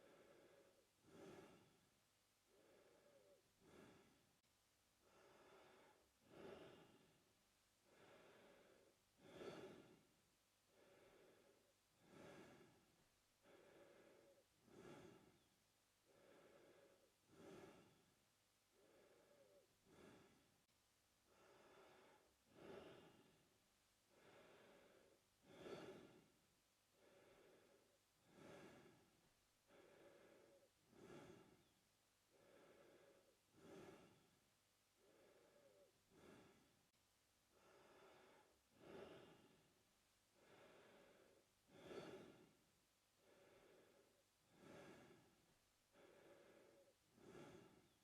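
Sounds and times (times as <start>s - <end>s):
man breathing through mouth: 0.0s - 1.8s, 2.5s - 4.2s, 13.4s - 15.5s, 16.1s - 18.0s, 18.7s - 20.5s, 24.1s - 26.3s, 27.0s - 29.1s, 29.7s - 31.7s, 32.3s - 34.4s, 35.0s - 36.8s, 40.4s - 42.6s, 43.2s - 48.0s.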